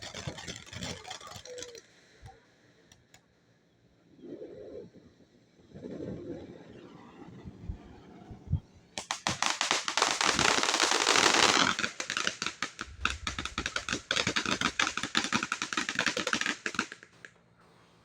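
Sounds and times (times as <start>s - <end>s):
firework hissing and crackling: 0.0s - 2.3s, 5.6s - 18.0s
sharp crackling pops: 0.0s - 3.3s, 9.0s - 17.5s.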